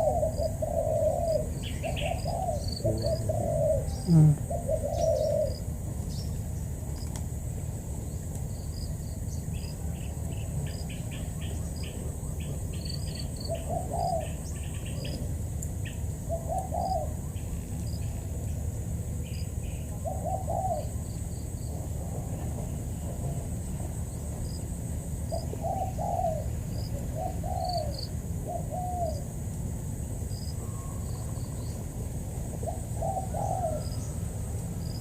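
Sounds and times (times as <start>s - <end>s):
dove cooing: 0.0s - 5.7s, 13.4s - 15.3s, 16.2s - 17.5s, 19.7s - 21.0s, 25.3s - 29.3s, 32.6s - 34.2s
small birds chirping: 0.0s - 7.2s
insects trilling: 0.0s - 35.0s.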